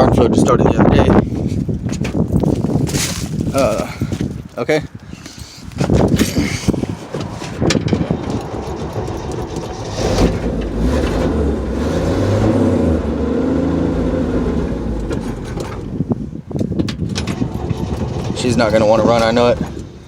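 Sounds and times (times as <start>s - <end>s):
car engine revving unevenly: 8.3s - 16.0s
starter motor cranking: 17.1s - 19.9s.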